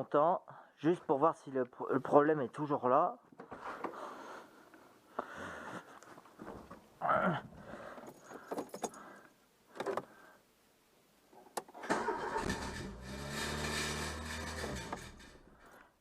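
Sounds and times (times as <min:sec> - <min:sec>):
keys rattling: 0:08.0 - 0:09.2
car engine starting and running: 0:11.8 - 0:15.5.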